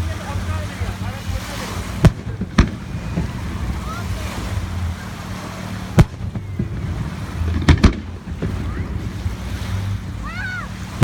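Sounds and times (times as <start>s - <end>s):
distant crowd noise: 0.0s - 11.0s
wind: 0.0s - 11.0s
fireworks exploding: 1.3s - 9.5s.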